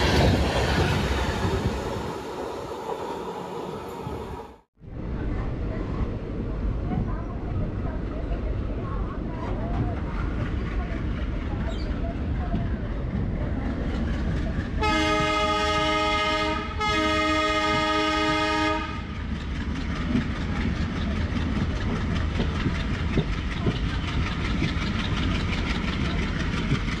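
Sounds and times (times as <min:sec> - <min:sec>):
moving train rumble: 0:00.0 - 0:27.0
locomotive horn blasts: 0:14.8 - 0:19.1.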